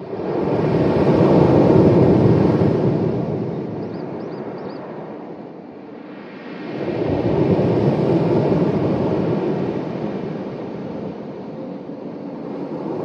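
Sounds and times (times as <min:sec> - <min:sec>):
sea waves washing onto shore: 0:06.1 - 0:13.0.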